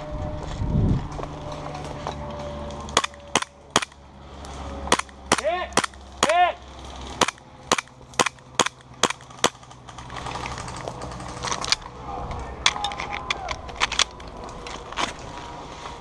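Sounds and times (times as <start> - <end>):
airsoft gun shots: 4.9 - 6.4.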